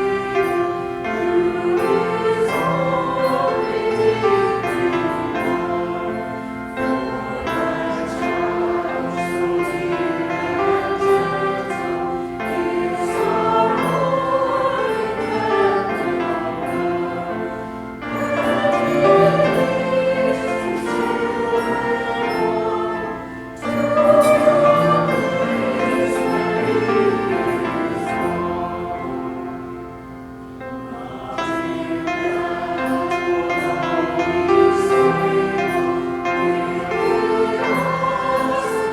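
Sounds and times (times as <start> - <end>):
church choir singing: 0.0 - 38.9.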